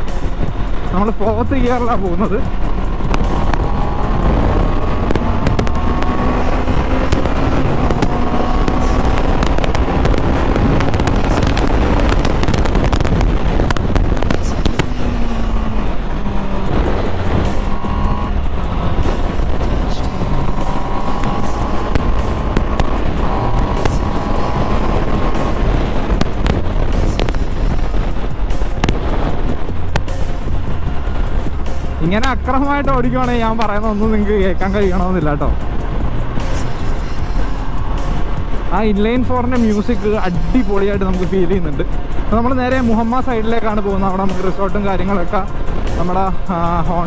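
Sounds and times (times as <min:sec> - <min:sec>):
wind rush: 0:00.0 - 0:47.0
motorcycle engine pulling hard: 0:00.6 - 0:30.1.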